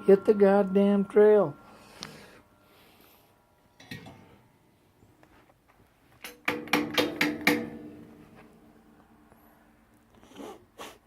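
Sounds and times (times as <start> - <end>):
metal stove ringing: 3.7 - 4.6, 6.2 - 8.5
metallic knocks on stove: 6.2 - 8.0.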